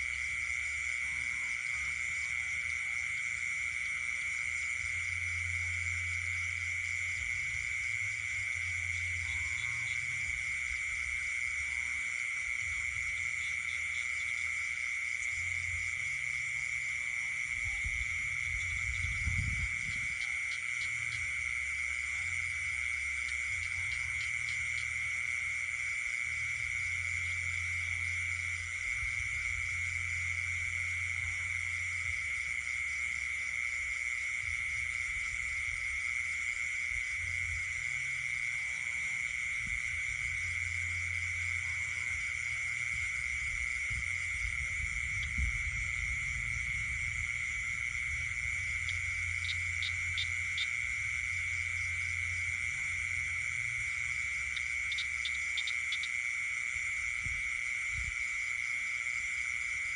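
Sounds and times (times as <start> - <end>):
frog croaking: 0.0 - 59.9
high-pitched insect drone: 0.0 - 59.9.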